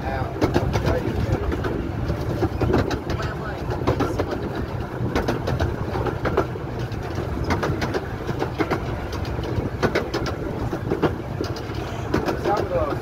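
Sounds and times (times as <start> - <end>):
miniature train rumbling: 0.0 - 13.0
wheels clicking and knocking: 0.0 - 13.0.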